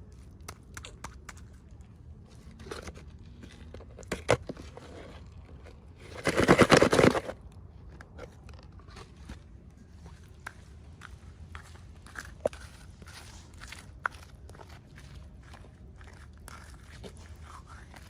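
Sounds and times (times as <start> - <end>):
packaging clicks and rustles: 6.0 - 8.8.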